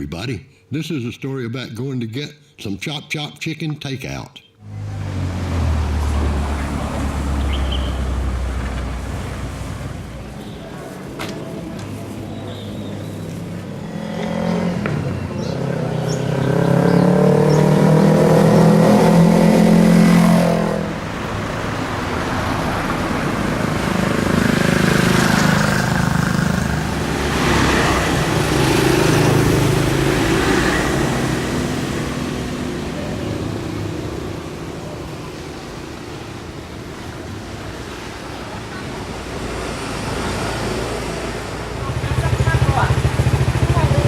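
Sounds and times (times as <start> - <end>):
motorcycle engine accelerating: 13.6 - 21.0, 23.2 - 34.8, 40.1 - 44.0.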